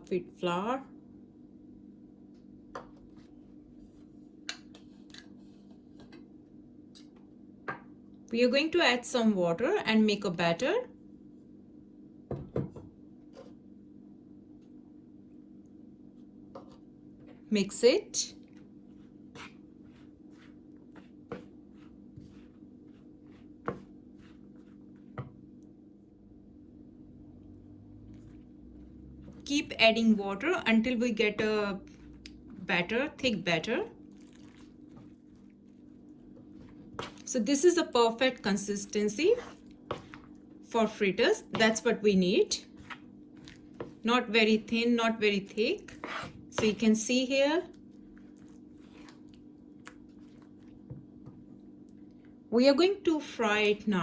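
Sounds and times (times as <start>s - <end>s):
steady low hum: 0.0s - 54.0s
batter being mixed in a bowl: 14.5s - 26.8s, 27.6s - 54.0s.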